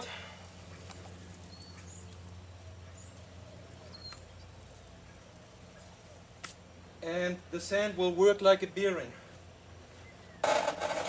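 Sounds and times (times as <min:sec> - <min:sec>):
bird chirps: 0:00.7 - 0:06.2.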